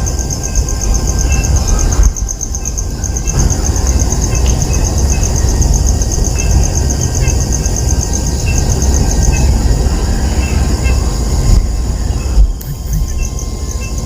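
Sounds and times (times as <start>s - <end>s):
insects chirring: 0.0s - 14.0s
loud low rumble: 8.7s - 13.6s
short high chirps: 12.6s - 13.3s.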